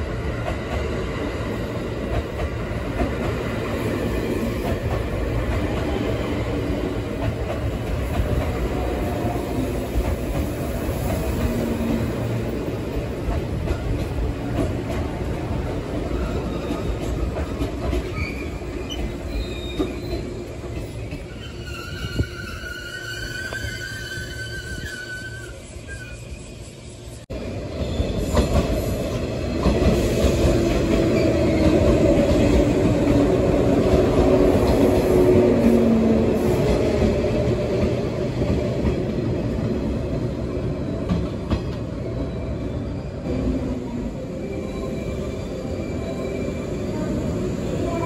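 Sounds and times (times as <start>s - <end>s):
train wheels rumbling on rails: 0.0s - 48.0s.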